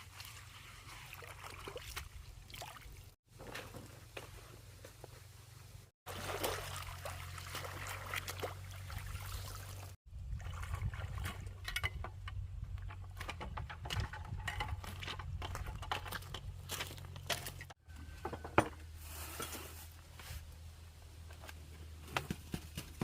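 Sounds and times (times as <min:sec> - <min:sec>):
water trickling and splashing: 0:00.0 - 0:03.2, 0:06.1 - 0:12.1.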